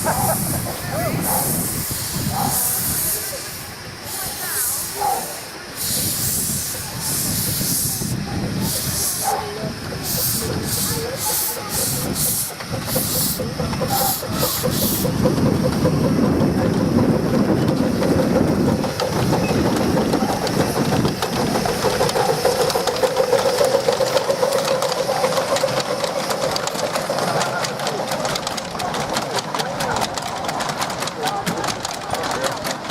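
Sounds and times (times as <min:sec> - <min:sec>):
steam locomotive hissing: 0:00.0 - 0:32.9
train clicking on track: 0:00.0 - 0:32.9.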